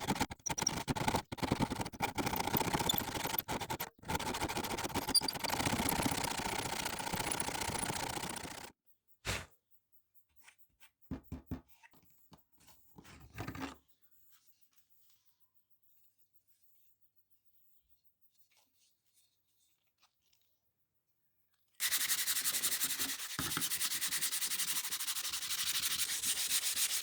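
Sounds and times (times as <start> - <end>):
steady scraping: 0.0 - 8.7.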